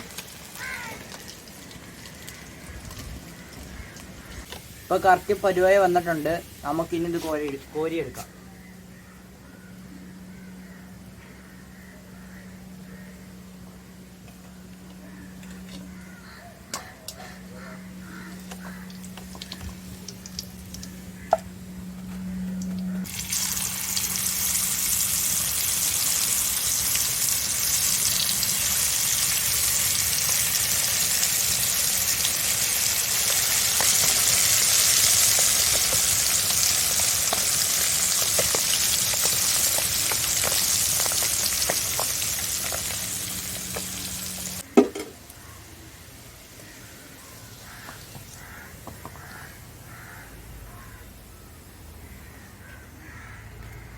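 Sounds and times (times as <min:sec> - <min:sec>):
sausages sizzling in hot oil: 0:00.0 - 0:08.1, 0:18.1 - 0:21.3, 0:23.0 - 0:44.8
low hum: 0:08.3 - 0:25.8.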